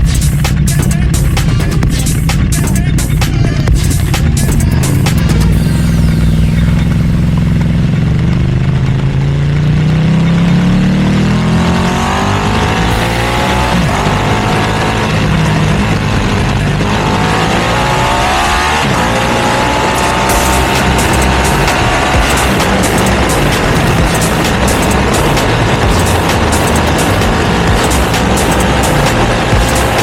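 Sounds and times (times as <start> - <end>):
motorcycle engine accelerating hard: 0.0 - 30.0.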